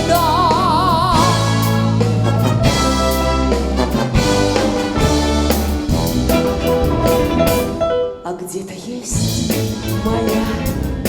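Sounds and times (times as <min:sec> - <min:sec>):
brass band playing: 0:00.0 - 0:08.2, 0:09.2 - 0:11.0
drum hits: 0:00.6 - 0:07.9.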